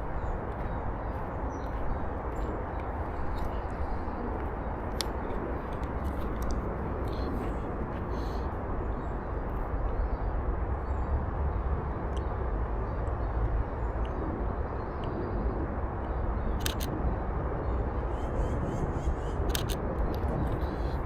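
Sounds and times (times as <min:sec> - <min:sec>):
camera shutter clicking: 0:16.6 - 0:16.9, 0:19.5 - 0:19.8.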